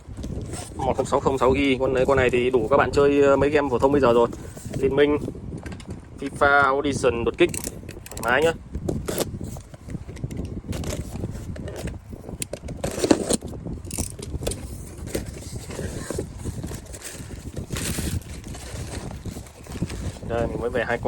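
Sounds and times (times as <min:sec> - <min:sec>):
packaging clicks and rustling: 0:07.4 - 0:20.3.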